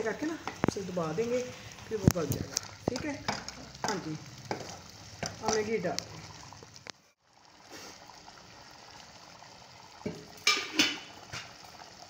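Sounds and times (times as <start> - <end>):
food sizzling in a pan: 0.0 - 12.0
ladle clanking against pan: 10.1 - 11.1.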